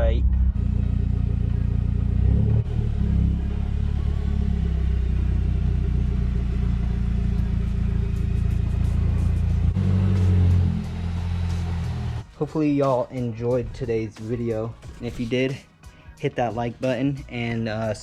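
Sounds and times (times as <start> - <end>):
car engine idling: 0.0 - 12.4.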